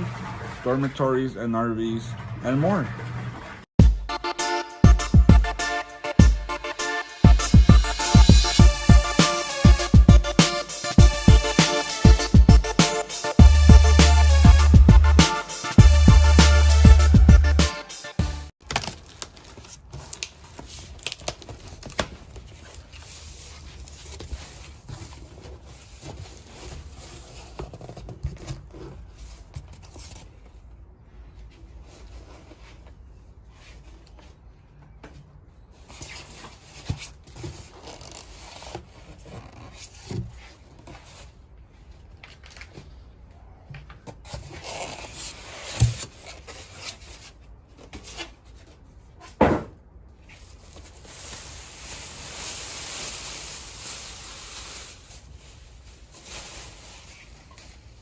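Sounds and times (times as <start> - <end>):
rustling: 18.7 - 34.8, 50.2 - 58.0
handling rubbing and scraping: 22.3 - 34.6, 44.1 - 49.4.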